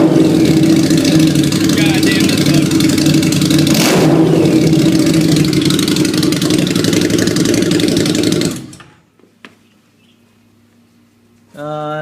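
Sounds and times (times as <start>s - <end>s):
motorcycle engine idling: 0.0s - 8.9s.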